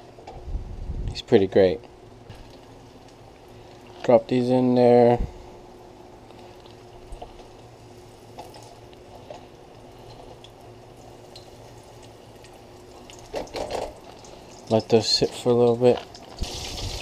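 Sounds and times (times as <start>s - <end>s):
fish frying in hot oil: 9.5s - 15.2s, 16.1s - 17.0s.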